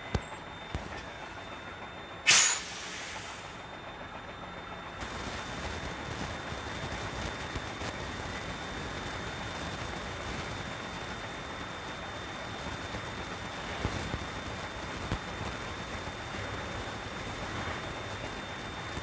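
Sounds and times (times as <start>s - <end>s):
thin high whine: 0.0s - 19.0s.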